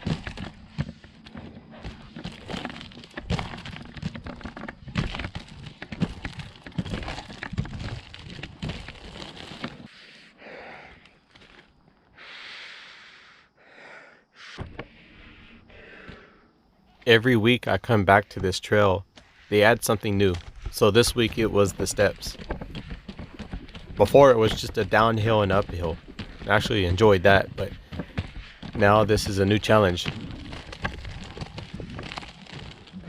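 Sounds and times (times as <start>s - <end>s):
skate wheels clunking on stairs: 0.0s - 9.8s, 17.8s - 33.0s
cracking and crunching: 0.0s - 9.9s, 11.0s - 12.0s, 18.1s - 33.0s.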